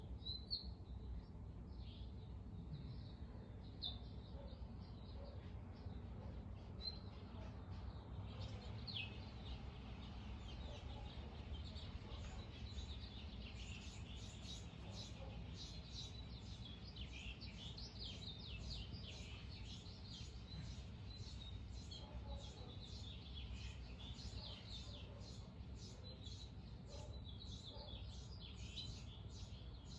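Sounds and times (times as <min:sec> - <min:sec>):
birds chirping and calling: 0:03.9 - 0:29.9.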